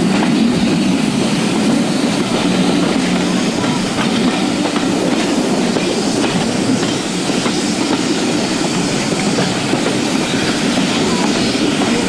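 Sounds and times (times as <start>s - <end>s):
carriages rumbling: 0.0s - 12.0s.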